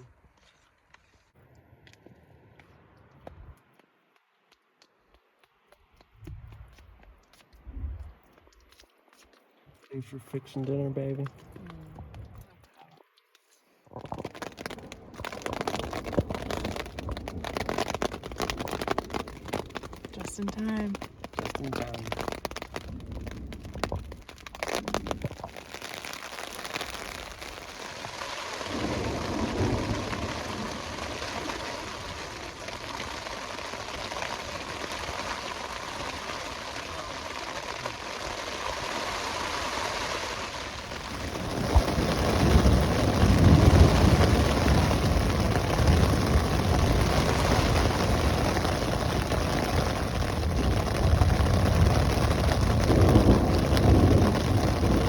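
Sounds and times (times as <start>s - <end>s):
rain falling: 13.9s - 55.0s
deep thunder rumble: 28.7s - 33.0s, 40.8s - 55.0s.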